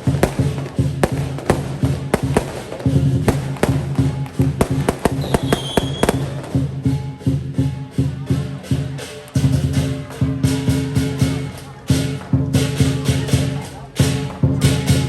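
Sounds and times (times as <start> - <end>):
cymbals clashing: 0.0 - 15.0
large drum beating: 0.0 - 15.0
high whistling tone: 5.2 - 6.2.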